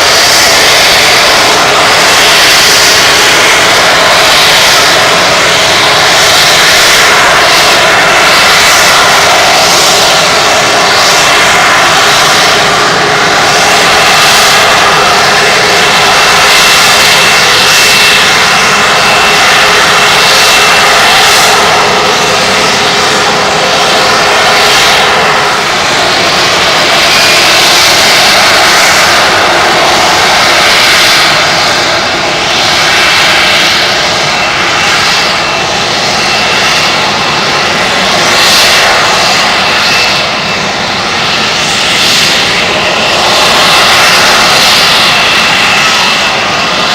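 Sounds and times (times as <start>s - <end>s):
jet engine roar with high whine: 0.0s - 46.9s.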